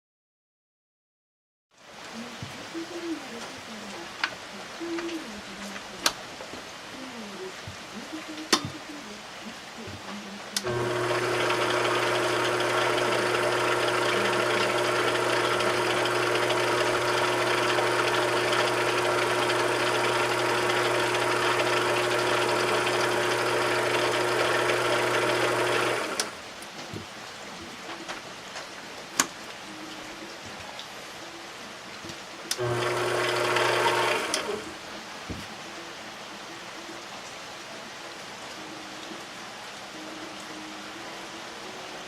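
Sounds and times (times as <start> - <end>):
machine tool motor humming: 10.6 - 26.4, 32.5 - 34.7.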